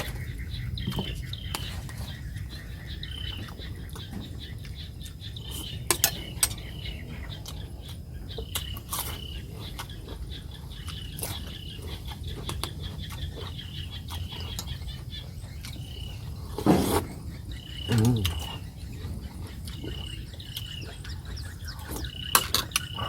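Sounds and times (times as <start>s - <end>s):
chewing: 3.4s - 23.0s.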